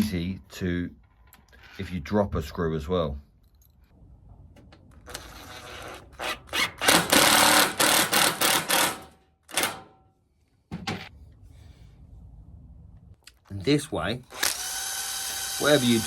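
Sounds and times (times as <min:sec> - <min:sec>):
impact driver driving a screw: 0:05.1 - 0:09.8.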